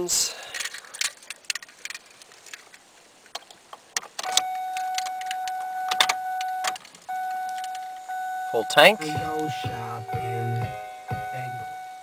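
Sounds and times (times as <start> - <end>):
electronic warning tone: 4.4 - 12.0.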